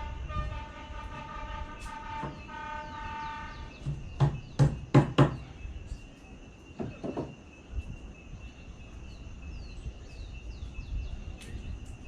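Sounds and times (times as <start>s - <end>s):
train horn blast: 0.0s - 3.8s
sharp knocks: 3.8s - 5.4s, 6.8s - 7.4s.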